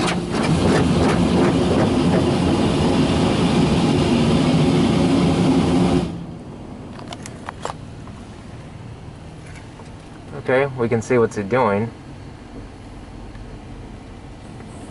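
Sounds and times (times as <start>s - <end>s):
water jets blasting on car: 0.0s - 6.3s.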